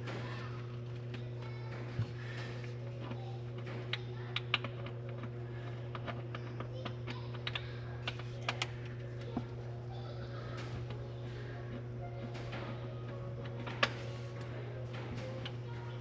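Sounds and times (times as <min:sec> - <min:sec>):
steady low hum: 0:00.0 - 0:16.0
metal parts clicking and tapping: 0:03.0 - 0:09.5.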